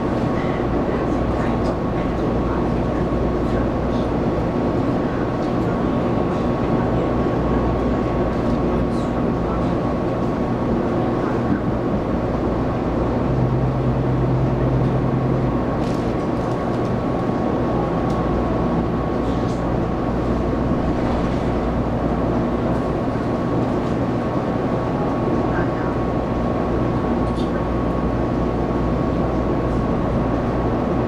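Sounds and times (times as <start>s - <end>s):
train wheels rumbling on rail: 0.0s - 31.0s
low hum: 11.6s - 22.2s.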